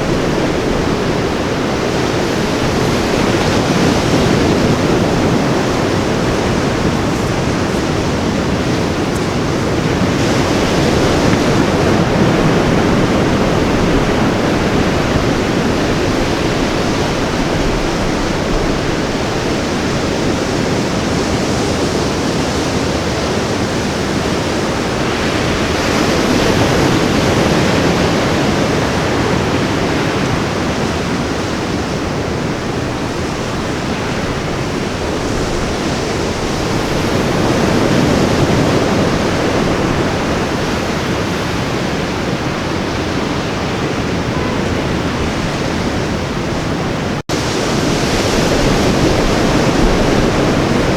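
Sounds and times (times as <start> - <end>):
ocean waves washing onto beach: 0.0 - 50.9.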